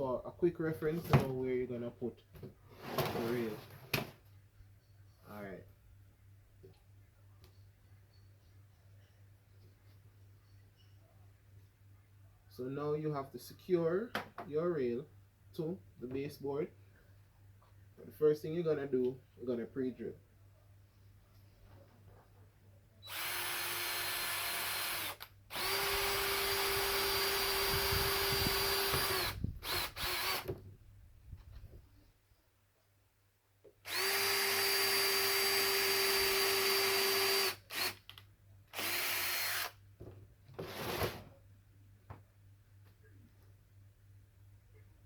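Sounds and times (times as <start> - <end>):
power drill drilling: 23.1 - 30.5, 33.9 - 38.0, 38.7 - 39.8.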